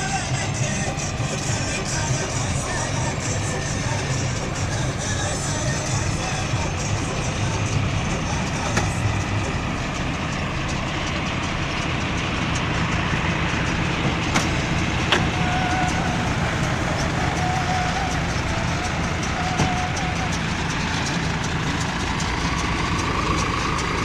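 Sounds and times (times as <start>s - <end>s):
tractor engine running: 0.0s - 24.0s
thin whistling tone: 15.3s - 23.6s.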